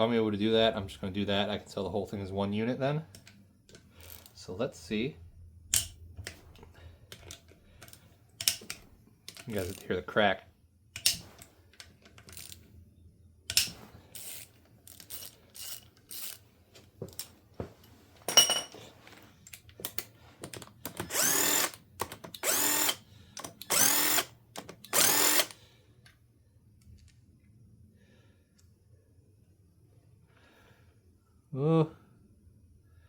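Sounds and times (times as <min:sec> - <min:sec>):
cordless power tool whining: 0:20.9 - 0:25.6.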